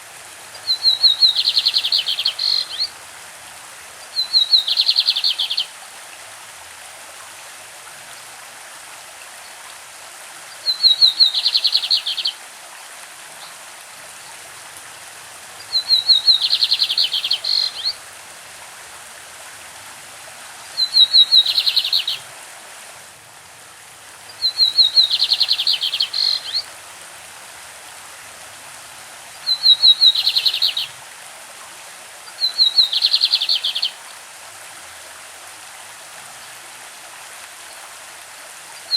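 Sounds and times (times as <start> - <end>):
stream rushing: 0.0 - 38.9
bird singing with buzzy trill: 0.6 - 2.9, 15.7 - 17.9, 20.8 - 22.2, 24.4 - 26.6, 29.5 - 30.9, 32.4 - 33.9.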